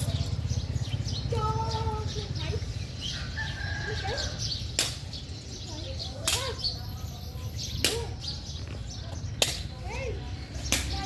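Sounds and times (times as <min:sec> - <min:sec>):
sharp smacks: 0:04.8 - 0:05.1, 0:06.2 - 0:06.6, 0:07.8 - 0:08.2, 0:09.4 - 0:09.7, 0:10.7 - 0:11.0.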